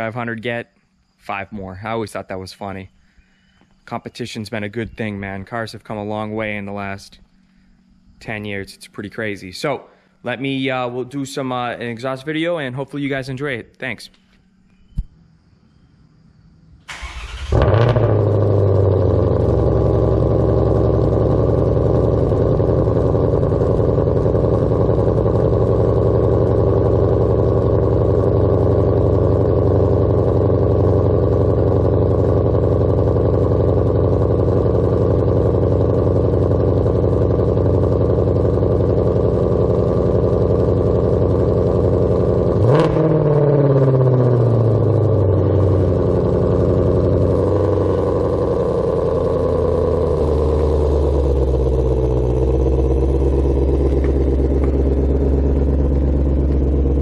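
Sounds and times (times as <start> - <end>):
car engine fast idle and revving: 16.9 - 57.0.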